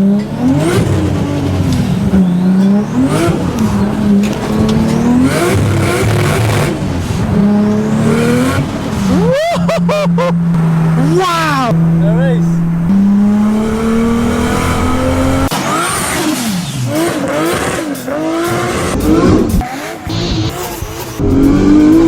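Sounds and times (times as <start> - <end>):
high squealing glides: 0.0 - 16.9
car engine revving hard: 0.0 - 22.0.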